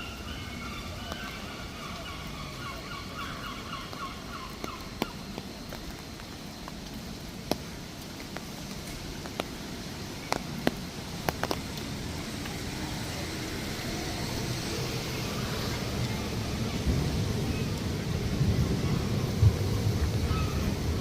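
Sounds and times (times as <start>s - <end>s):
street traffic on wet road: 0.0s - 21.0s
vehicle approaching: 11.1s - 21.0s.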